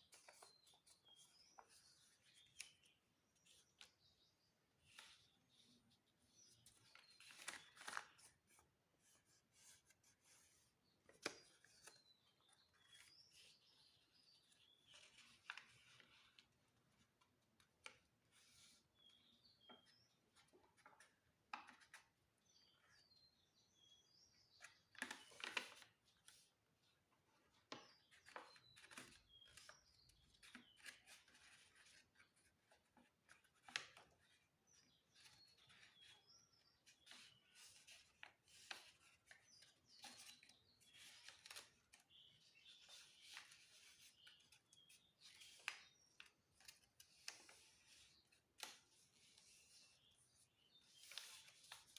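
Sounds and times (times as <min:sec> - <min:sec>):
paper rustling and crinkling: 0:06.5 - 0:08.6, 0:24.9 - 0:26.4, 0:50.8 - 0:51.9.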